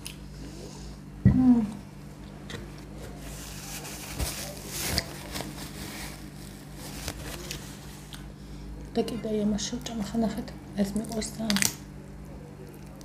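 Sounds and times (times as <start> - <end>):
low electrical hum: 0.0 - 13.0
paper napkin rustling: 2.9 - 8.1.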